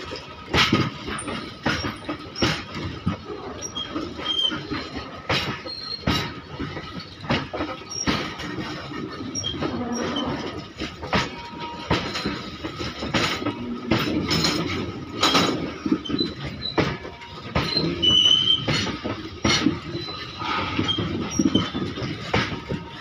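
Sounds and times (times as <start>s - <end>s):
freight wagon wheels clacking: 0.0s - 23.0s
short high squeal: 20.0s - 21.8s.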